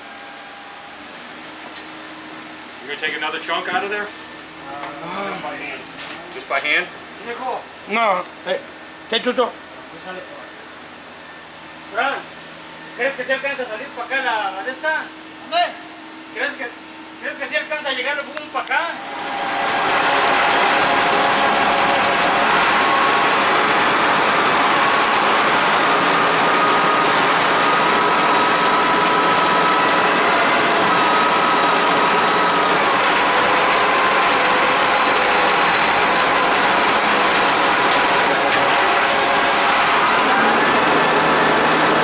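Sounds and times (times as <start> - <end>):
large engine running: 18.7 - 42.0.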